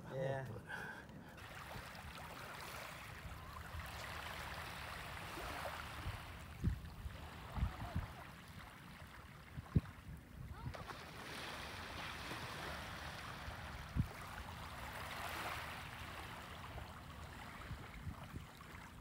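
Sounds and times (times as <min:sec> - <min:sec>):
rushing water: 0:01.4 - 0:09.6.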